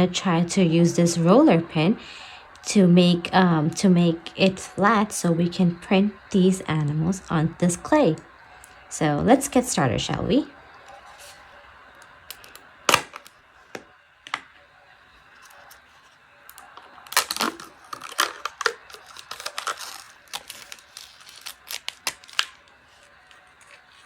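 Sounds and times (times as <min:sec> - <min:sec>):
packaging clicking and crinkling: 0:12.0 - 0:14.5, 0:15.3 - 0:24.0.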